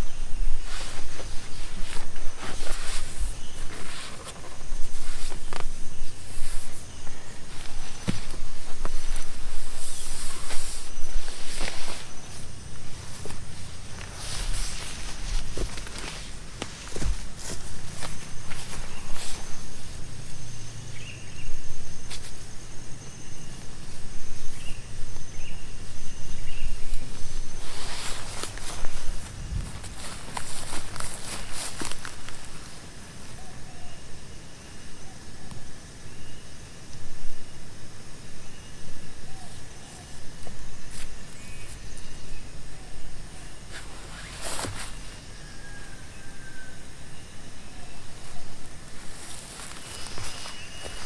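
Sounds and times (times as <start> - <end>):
wind rumble on microphone: 28.5 - 31.2.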